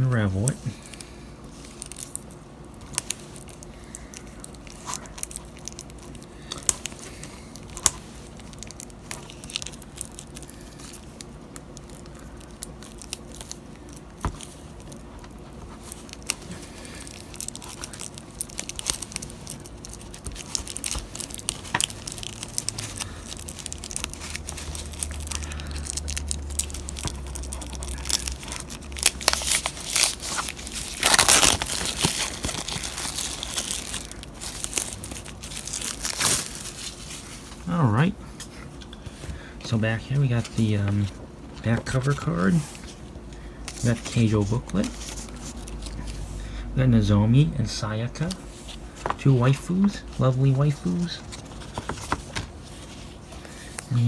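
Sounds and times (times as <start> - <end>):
plastic wrapping being torn: 1.6 - 37.7, 43.7 - 46.2.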